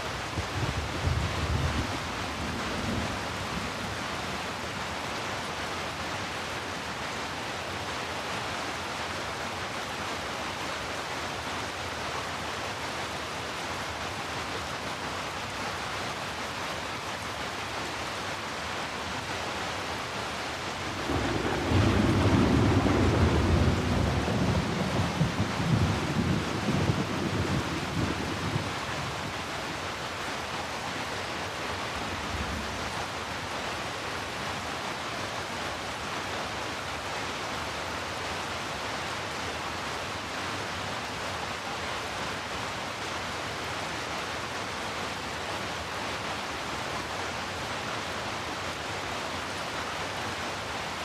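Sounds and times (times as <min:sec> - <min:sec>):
steady rain hiss: 0:00.0 - 0:51.0
rolling thunder: 0:20.9 - 0:28.8.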